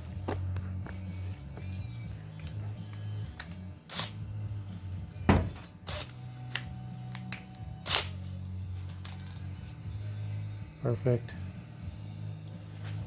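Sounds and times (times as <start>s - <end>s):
metallic clicks of hand tools: 2.4s - 4.2s, 5.9s - 8.2s.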